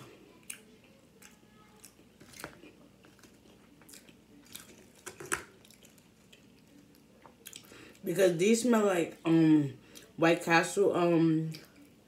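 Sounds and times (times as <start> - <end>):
crunchy chewing: 0.3 - 8.0.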